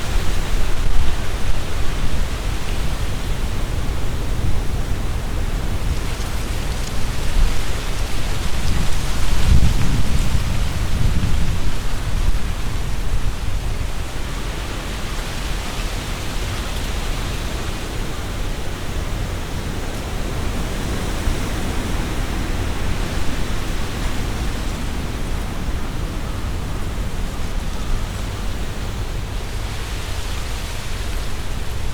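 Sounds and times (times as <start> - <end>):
low gust rumble: 0.0 - 15.1
leaves rustling: 0.0 - 31.9
wind through trees: 0.0 - 31.9.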